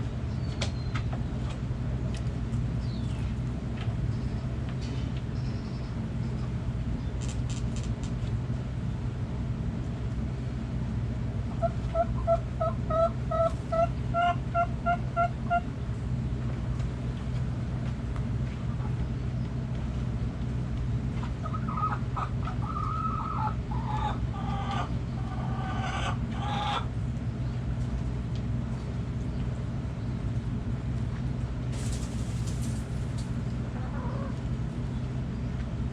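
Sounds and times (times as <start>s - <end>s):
steady low hum: 0.0s - 35.9s
hen clucking: 11.5s - 15.7s, 21.2s - 26.9s, 33.6s - 34.4s
chicken squawking: 11.6s - 15.6s, 21.4s - 26.9s, 33.8s - 34.4s.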